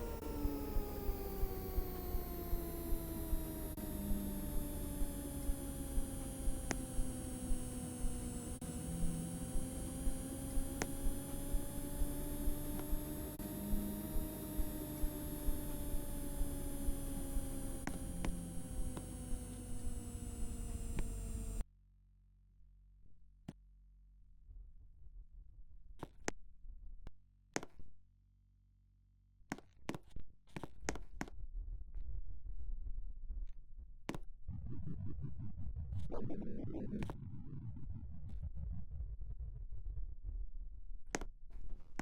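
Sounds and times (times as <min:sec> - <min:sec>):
washing machine motor whine: 0:00.0 - 0:21.6.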